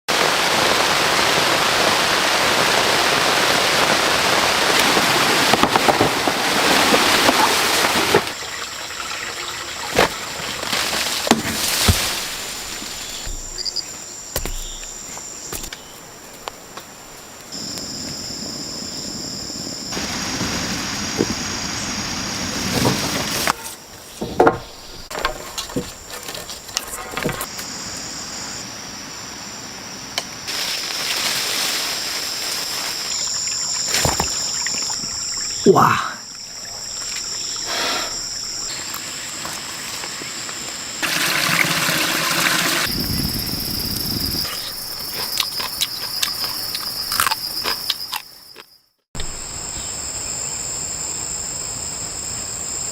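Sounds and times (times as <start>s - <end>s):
heavy rain: 0.1s - 8.4s, 18.6s - 23.3s
insects calling in high tones: 3.7s - 52.9s.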